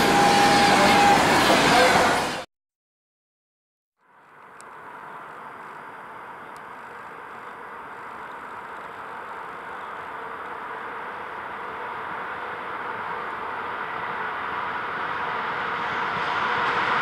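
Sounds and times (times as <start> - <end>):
distant locomotive rumble: 4.0 - 17.0.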